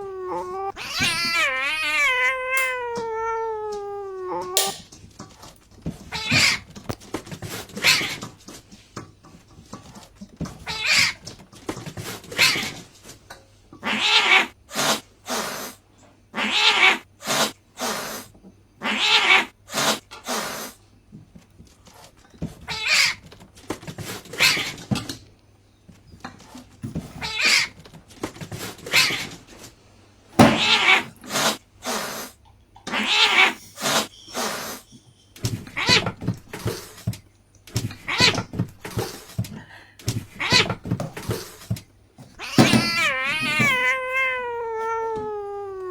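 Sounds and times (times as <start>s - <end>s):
cat meowing and yowling: 0.0s - 4.8s, 30.4s - 31.1s, 42.4s - 45.9s.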